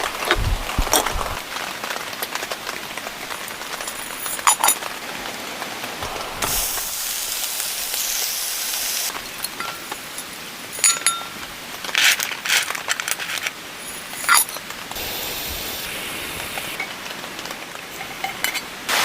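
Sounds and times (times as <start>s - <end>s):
rain patter: 0.0s - 19.0s
steady hiss: 5.1s - 19.0s
utensils clinking on cookware: 9.2s - 11.4s, 13.0s - 14.6s, 17.9s - 18.7s.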